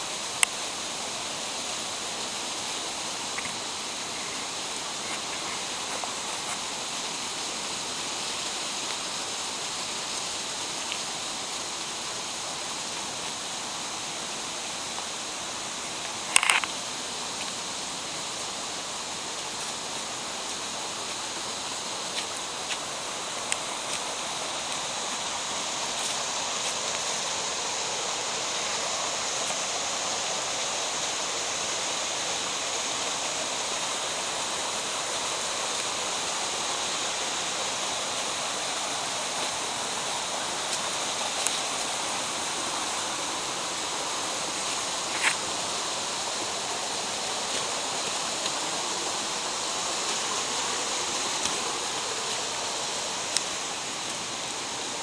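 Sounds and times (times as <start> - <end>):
mountain stream rushing: 0.0 - 55.0
faint clicks: 3.3 - 3.6, 16.0 - 16.8.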